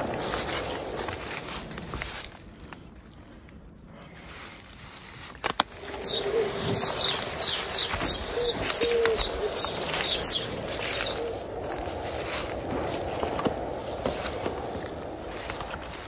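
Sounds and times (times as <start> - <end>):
bird low notes: 5.7 - 16.0
bird high chirps: 5.8 - 11.9.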